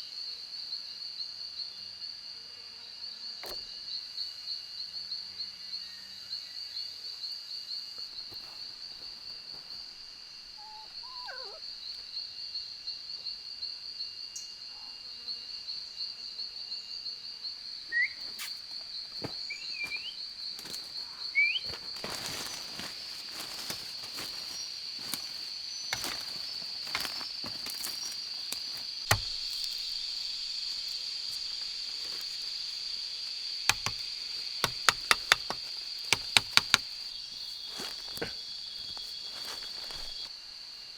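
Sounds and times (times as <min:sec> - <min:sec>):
insects trilling: 0:00.0 - 0:40.9
sharp clicks and knocks: 0:25.9 - 0:30.0, 0:33.7 - 0:36.9.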